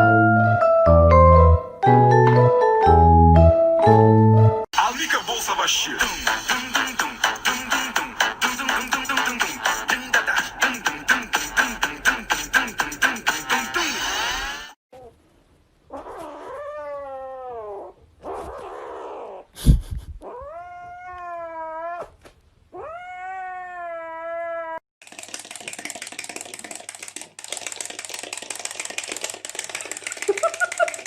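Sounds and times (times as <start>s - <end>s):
cat meowing: 20.2s - 24.8s.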